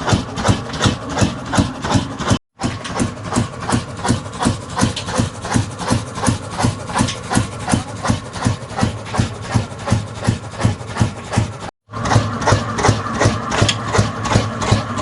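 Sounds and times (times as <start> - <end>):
diesel engine knocking steadily: 0.0 - 15.0.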